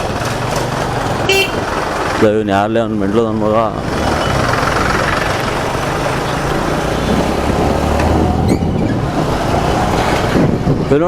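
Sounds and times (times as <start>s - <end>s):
motorcycle engine running: 0.0s - 8.1s
wind and road noise: 0.0s - 11.0s.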